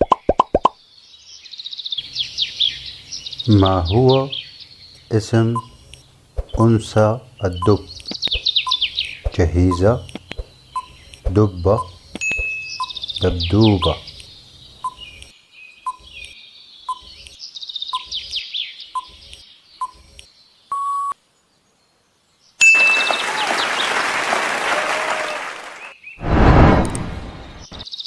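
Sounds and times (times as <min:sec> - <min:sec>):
high bird-like chirps: 0:02.0 - 0:21.2
countdown ticking: 0:07.6 - 0:10.2
single beep: 0:11.8 - 0:12.9, 0:20.8 - 0:21.2
rush of applause-like noise: 0:22.6 - 0:25.9.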